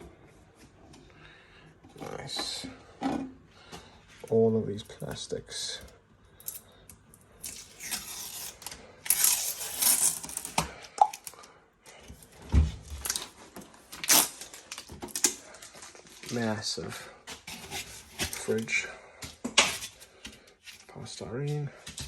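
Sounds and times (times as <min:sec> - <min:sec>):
plastic packaging tearing and rustling: 0:07.4 - 0:10.6, 0:12.9 - 0:16.6, 0:17.3 - 0:18.6.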